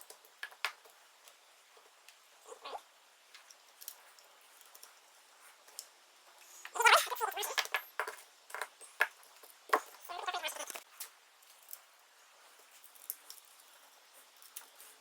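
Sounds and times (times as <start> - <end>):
small metal clicks and scrapes: 3.3 - 11.9, 12.5 - 15.0.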